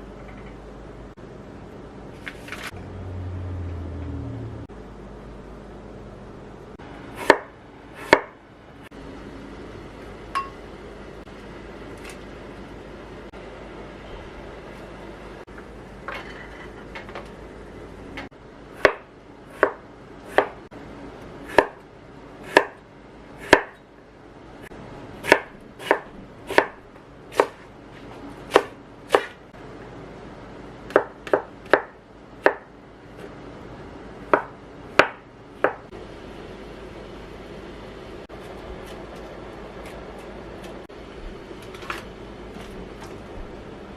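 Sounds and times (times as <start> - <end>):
knife chopping on cutting board: 7.2 - 8.4, 18.8 - 20.6, 21.5 - 21.8, 22.4 - 22.8, 23.4 - 23.8, 25.2 - 27.7, 28.4 - 29.4, 30.9 - 32.7, 34.3 - 35.8.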